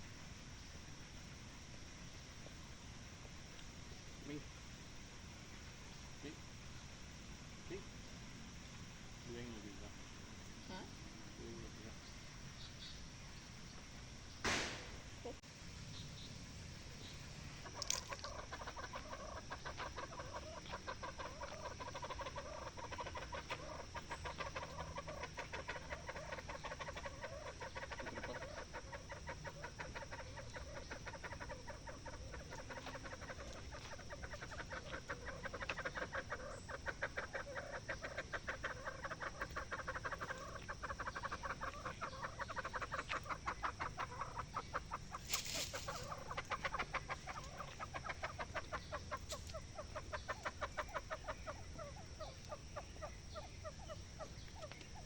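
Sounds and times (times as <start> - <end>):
chorus of clucking animal calls: 17.0 - 55.0.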